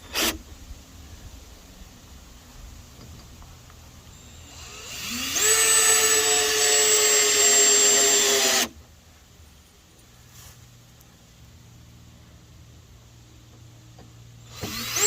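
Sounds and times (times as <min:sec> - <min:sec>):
power tool motor whining: 0:04.1 - 0:08.8, 0:14.4 - 0:15.0.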